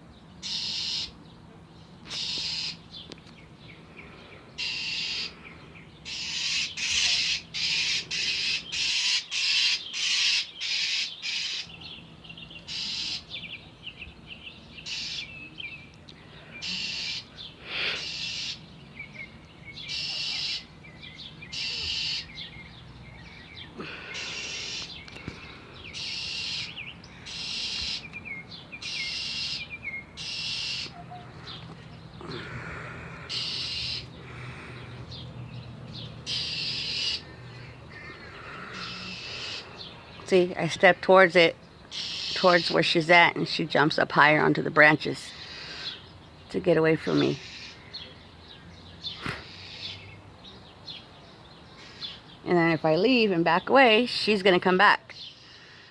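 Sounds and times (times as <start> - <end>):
bird alarm calls: 0.4 - 1.2, 2.1 - 3.0, 4.6 - 5.4, 6.0 - 13.6, 14.7 - 15.6, 16.6 - 32.6, 33.2 - 35.3, 35.9 - 40.7, 41.4 - 43.3, 45.0 - 50.2.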